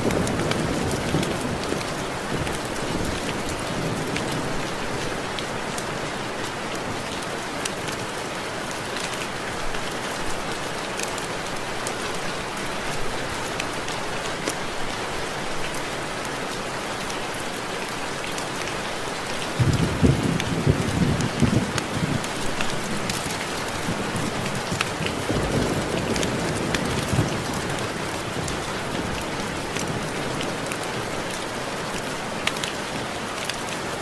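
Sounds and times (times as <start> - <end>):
low rumble of thunder: 0.0 - 5.4, 19.6 - 31.0
rain drops ticking on window glass: 0.0 - 14.6, 17.0 - 34.0.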